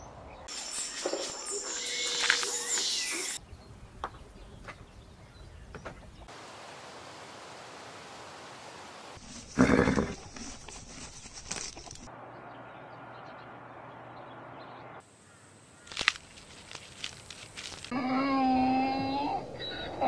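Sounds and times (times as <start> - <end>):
elephant chewing palm fronds: 15.8 - 17.9.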